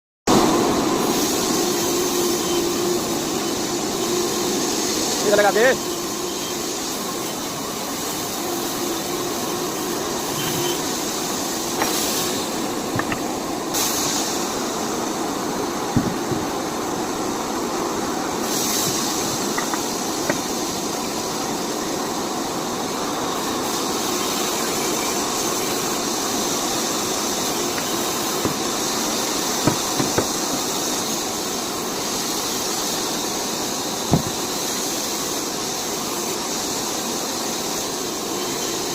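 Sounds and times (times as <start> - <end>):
steady hissing noise: 0.3 - 38.9
short knocks: 29.6 - 30.4.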